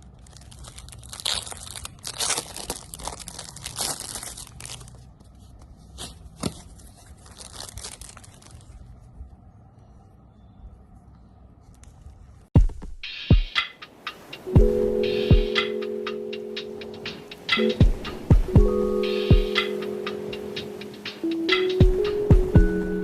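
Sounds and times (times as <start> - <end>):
packaging tearing and crinkling: 0.0 - 5.3, 5.9 - 8.9.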